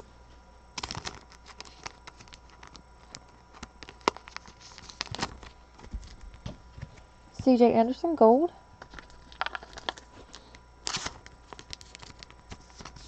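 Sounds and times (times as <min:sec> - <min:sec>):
cards being flipped: 0:08.9 - 0:13.0.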